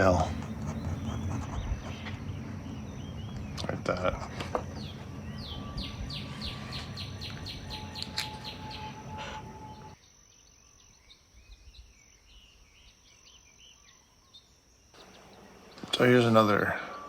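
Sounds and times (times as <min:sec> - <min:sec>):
bird chirping: 0:00.0 - 0:17.0
high insect-like whine: 0:01.7 - 0:17.0.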